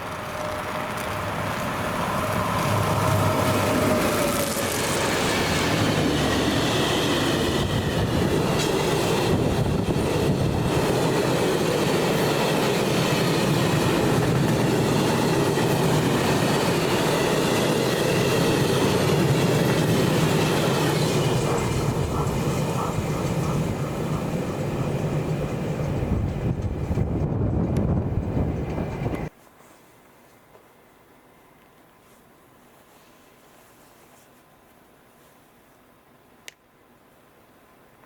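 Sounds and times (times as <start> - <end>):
train wheels rumbling on rails: 0.0 - 29.4.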